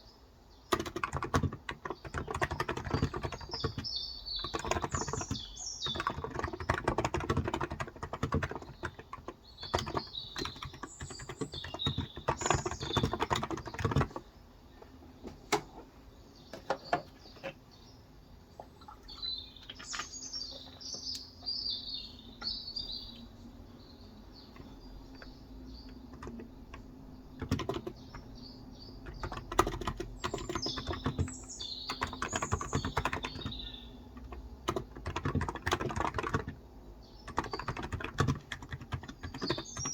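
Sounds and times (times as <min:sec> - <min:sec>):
small birds chirping: 0:00.0 - 0:39.9
typing on a keyboard: 0:00.7 - 0:14.3, 0:24.6 - 0:28.4, 0:29.0 - 0:39.9.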